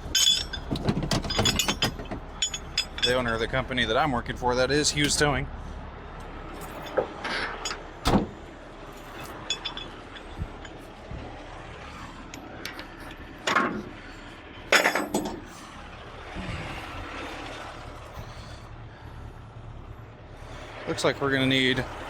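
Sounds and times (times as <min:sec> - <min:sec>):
metal chains clanking: 0:00.0 - 0:04.0, 0:06.5 - 0:08.1, 0:08.9 - 0:11.0, 0:14.7 - 0:15.5
diesel truck engine idling: 0:00.0 - 0:22.0.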